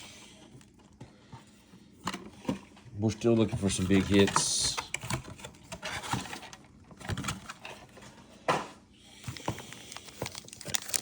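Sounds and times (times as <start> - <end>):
trading cards rustling and clicking: 3.2 - 7.9, 9.2 - 11.0
foil pack crinkle: 9.2 - 11.0.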